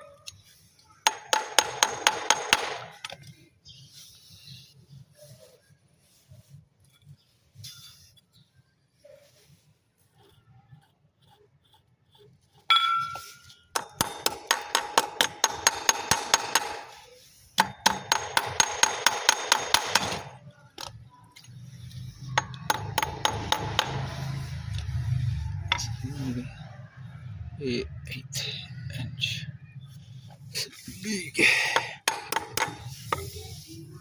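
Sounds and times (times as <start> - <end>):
hammer tapping on metal: 1.1 - 2.9, 12.7 - 16.9, 17.6 - 20.3, 22.4 - 24.1, 31.8 - 32.8.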